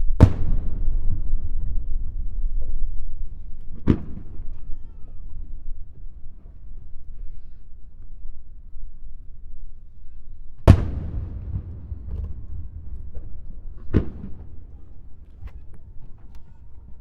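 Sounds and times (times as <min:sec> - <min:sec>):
low rumbling echo: 0:00.0 - 0:06.9, 0:10.6 - 0:17.0
faint firework crackles: 0:00.0 - 0:08.5, 0:10.0 - 0:17.0
firework shells bursting: 0:10.7 - 0:17.0.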